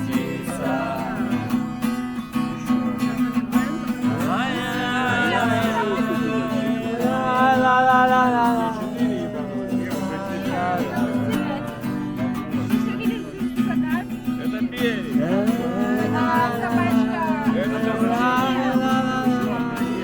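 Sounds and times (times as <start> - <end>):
acoustic guitar strummed: 0.0 - 20.0
person singing: 2.6 - 12.4.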